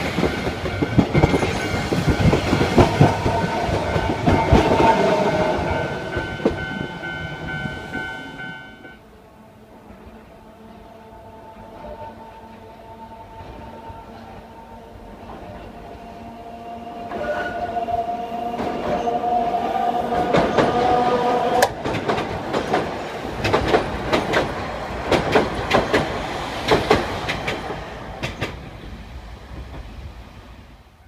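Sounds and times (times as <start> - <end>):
electric train whine: 0.0 - 31.0
wheels clacking over rail joints: 20.2 - 28.7.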